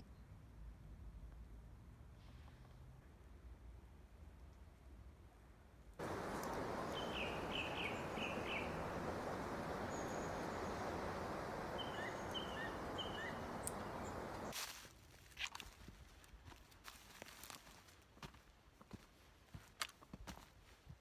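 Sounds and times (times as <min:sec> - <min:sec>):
birds chirping: 0:06.0 - 0:14.5
faint clicks: 0:06.0 - 0:14.5
steady rushing noise: 0:06.0 - 0:14.5.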